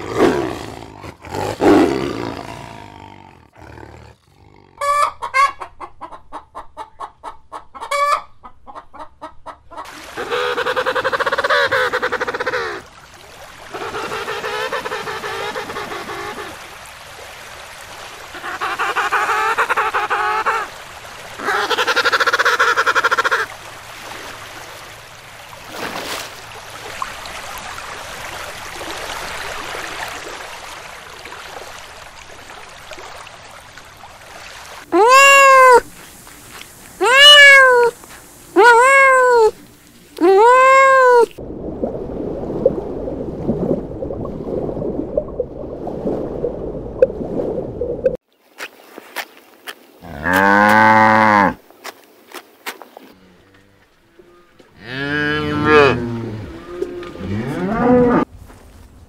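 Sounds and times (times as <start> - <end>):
cat meowing: 37.0 - 38.0, 38.6 - 39.6
cow mooing: 50.0 - 51.6, 53.2 - 58.2.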